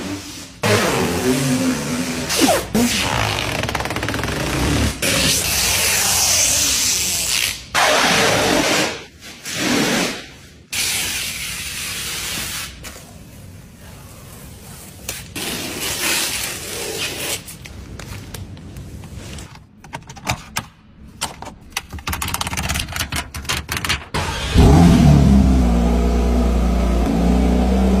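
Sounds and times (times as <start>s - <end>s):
protective covers rustling and scraping: 8.5s - 19.8s
car engine starting and idling: 24.2s - 28.0s.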